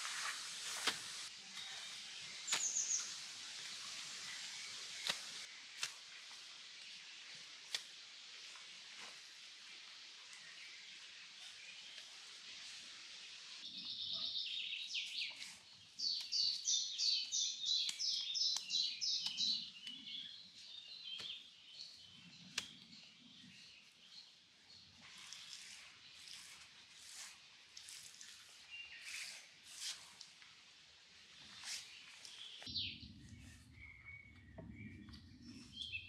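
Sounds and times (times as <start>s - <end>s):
steady high hiss: 0.0s - 13.6s
bird chirping: 1.6s - 3.2s, 13.6s - 24.3s, 31.9s - 36.0s.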